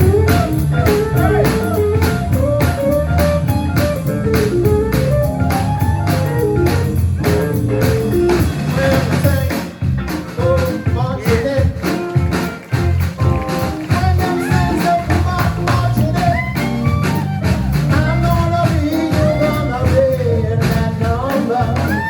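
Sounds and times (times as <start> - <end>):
melodic guitar lines: 0.0 - 8.8, 9.6 - 20.5
live blues band playing: 0.0 - 22.0
steady drum beat: 0.0 - 22.0.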